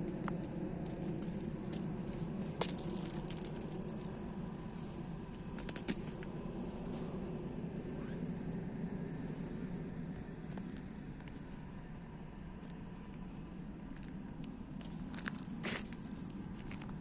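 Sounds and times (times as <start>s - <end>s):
low background noise: 0.0s - 17.0s
footsteps crunching on ice: 0.3s - 4.4s
sharp ice cracks: 2.6s - 4.3s.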